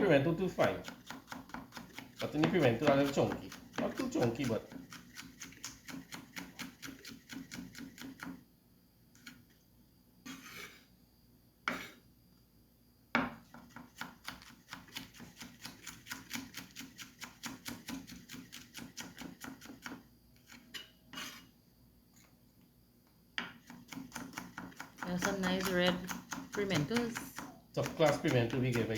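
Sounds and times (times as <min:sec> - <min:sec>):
scraping on cutting board: 0:00.6 - 0:08.3, 0:10.2 - 0:10.8, 0:11.7 - 0:12.0, 0:19.0 - 0:21.6
knife chopping on cutting board: 0:00.6 - 0:08.4, 0:13.2 - 0:20.0, 0:23.4 - 0:28.9
knock on cutting board: 0:13.2 - 0:13.9.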